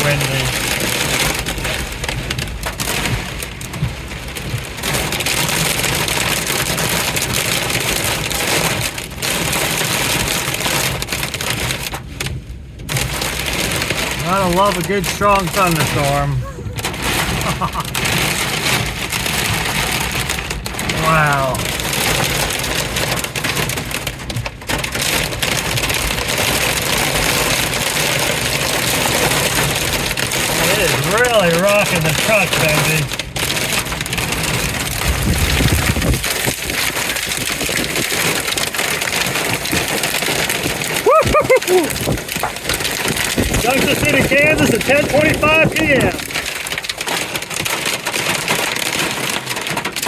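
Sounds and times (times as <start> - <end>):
heavy rain beating on truck: 0.0 - 50.0
strong gusting wind: 34.1 - 38.5, 39.2 - 46.4.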